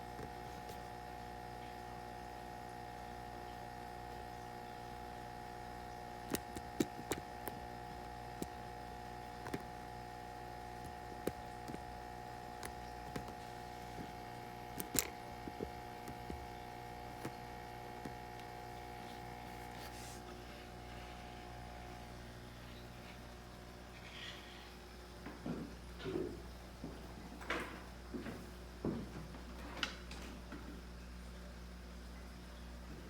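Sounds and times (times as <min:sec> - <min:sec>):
air pump humming: 0:00.0 - 0:27.1.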